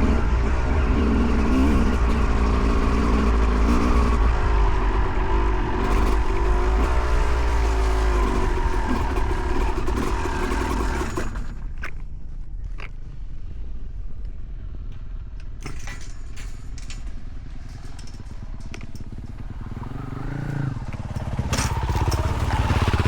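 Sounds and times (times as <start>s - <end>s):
dirt bike engine revving: 0.0s - 11.6s, 19.1s - 23.0s.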